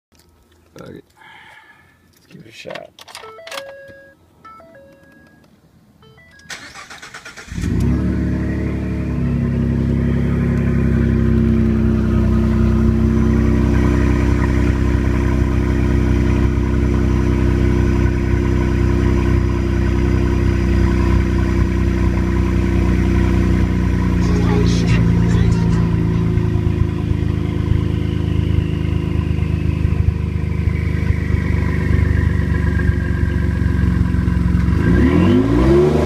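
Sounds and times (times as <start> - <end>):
engine starter cranking: 6.4 - 7.9
loud unsilenced engine idling: 23.6 - 27.8.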